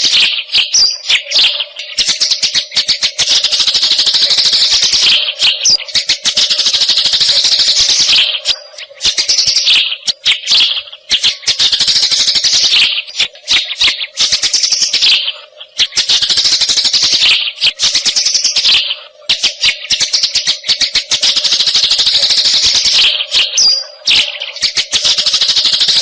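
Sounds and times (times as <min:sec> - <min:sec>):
sparrows chattering chirps: 0:00.0 - 0:26.0.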